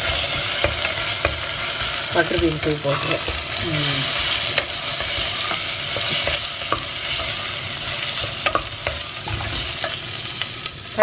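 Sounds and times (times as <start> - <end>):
beans and onions sizzling in oil: 0.0 - 11.0
wooden spoon knocking pan: 8.2 - 10.0.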